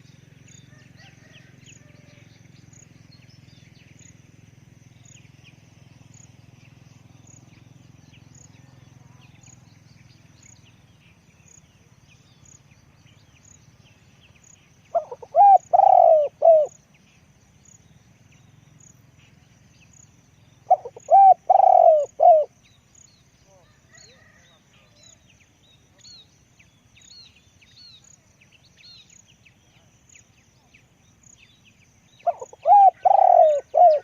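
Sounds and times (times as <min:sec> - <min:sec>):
dove cooing: 0:14.9 - 0:16.8, 0:20.6 - 0:22.6, 0:32.2 - 0:34.0.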